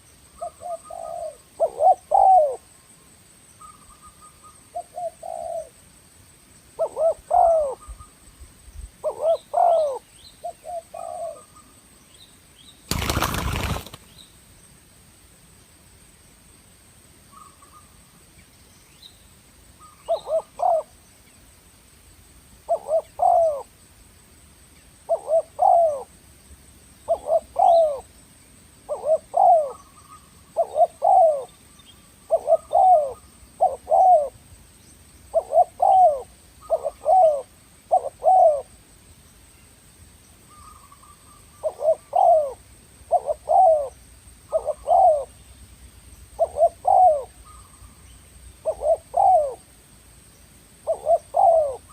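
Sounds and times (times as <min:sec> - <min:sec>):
dove cooing: 0:00.4 - 0:02.7, 0:04.0 - 0:05.8, 0:06.8 - 0:08.1, 0:09.0 - 0:11.5, 0:19.8 - 0:20.9, 0:22.7 - 0:23.7, 0:25.1 - 0:26.1, 0:27.1 - 0:28.1, 0:28.9 - 0:31.5, 0:32.3 - 0:34.4, 0:35.3 - 0:38.7, 0:40.5 - 0:45.4, 0:46.4 - 0:47.8, 0:48.6 - 0:49.6, 0:50.8 - 0:51.9.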